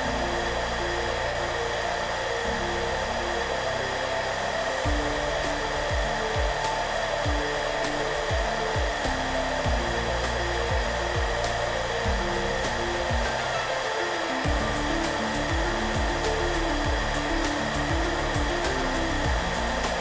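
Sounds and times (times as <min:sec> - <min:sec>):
hairdryer blowing: 0:00.0 - 0:20.0
soft background music: 0:00.0 - 0:20.0.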